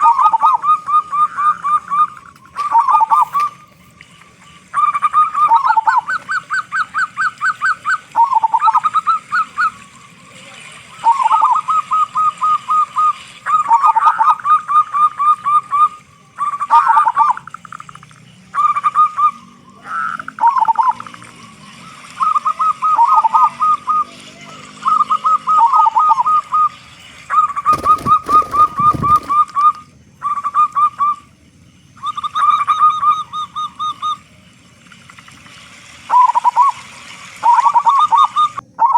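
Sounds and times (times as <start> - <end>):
dove cooing: 0.0 - 3.9, 4.7 - 9.9, 10.9 - 17.4, 22.3 - 24.1, 24.9 - 26.6, 27.3 - 29.7.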